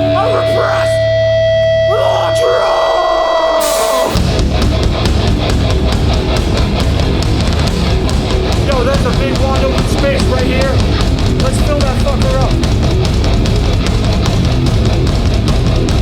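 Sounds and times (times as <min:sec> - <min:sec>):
drums and distorted guitars: 0:00.0 - 0:16.0
punk band playing live: 0:03.6 - 0:16.0.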